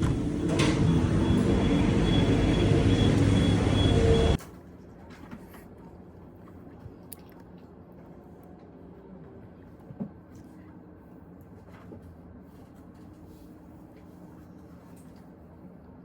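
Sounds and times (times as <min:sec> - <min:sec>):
vehicle running: 0:00.0 - 0:04.4.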